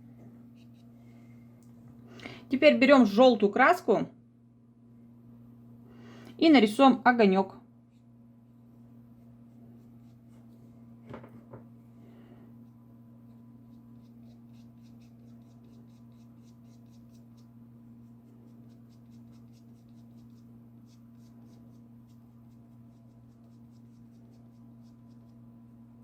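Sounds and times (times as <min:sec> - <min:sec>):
steady low hum: 0:00.0 - 0:26.0
paintbrush dabbing on paper: 0:13.3 - 0:25.4.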